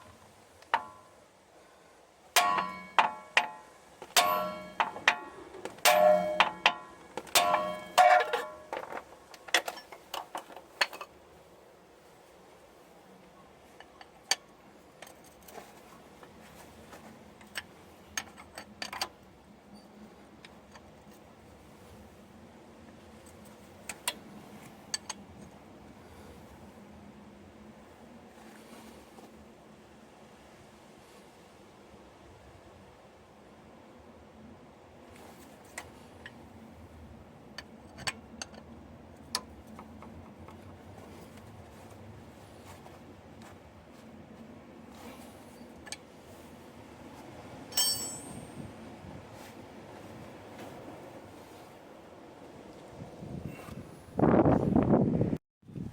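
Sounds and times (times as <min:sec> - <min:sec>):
low steady hum: 0:00.0 - 0:54.9
metallic tool clicks and clinks: 0:47.7 - 0:48.6.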